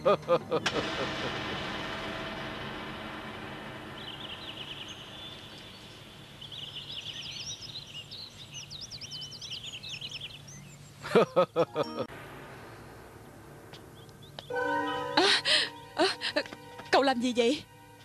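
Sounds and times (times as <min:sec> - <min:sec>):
birds chirping in rapid trills: 0:03.9 - 0:11.5.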